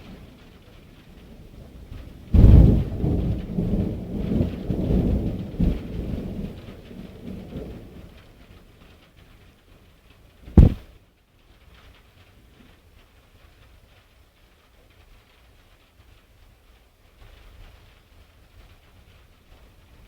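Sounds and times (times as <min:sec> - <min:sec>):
thunder rumbling: 0:00.0 - 0:08.6, 0:10.4 - 0:10.9
faint rain hissing: 0:00.0 - 0:20.0
sharp short thump: 0:10.5 - 0:10.8.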